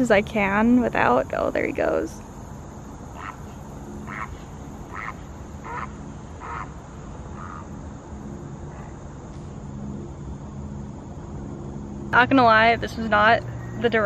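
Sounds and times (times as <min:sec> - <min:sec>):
bird calling short calls: 0:03.1 - 0:07.7.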